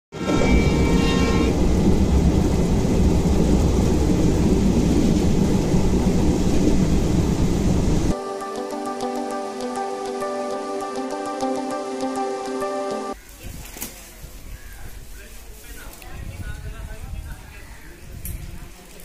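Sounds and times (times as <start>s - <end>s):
train rumbling: 0.1s - 8.2s.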